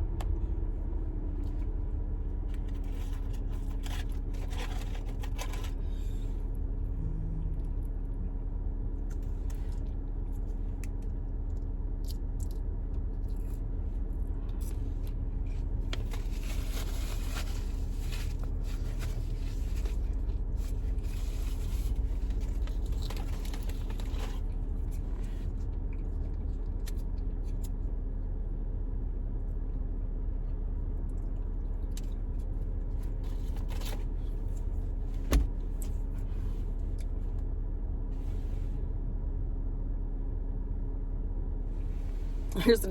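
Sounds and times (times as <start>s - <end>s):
car low hum: 0.0s - 42.9s
food packaging rustling: 2.6s - 5.8s, 15.8s - 24.6s.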